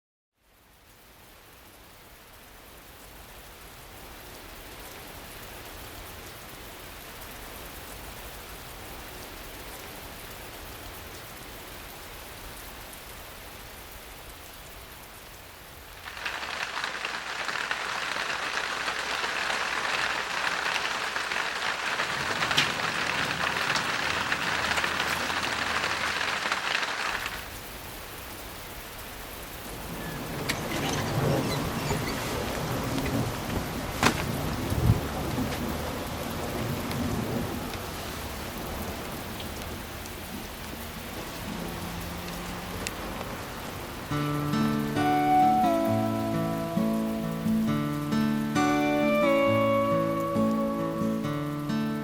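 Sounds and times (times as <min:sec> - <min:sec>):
steady rain falling: 0:00.4 - 0:52.0
raindrops ticking: 0:15.9 - 0:52.0.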